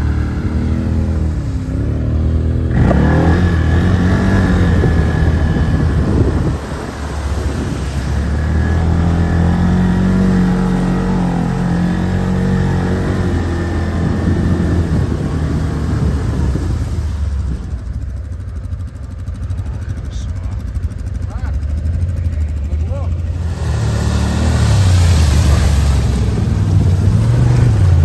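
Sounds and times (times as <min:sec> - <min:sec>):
quad bike engine revving: 0:00.0 - 0:28.0.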